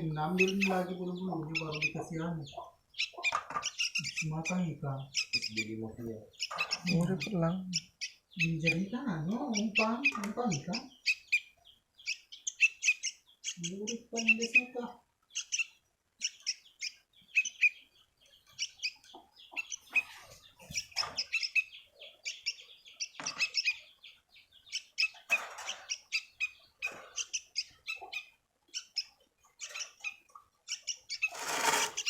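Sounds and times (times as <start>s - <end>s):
small bird chirping: 0.0s - 32.0s
brief rustles: 31.2s - 32.0s.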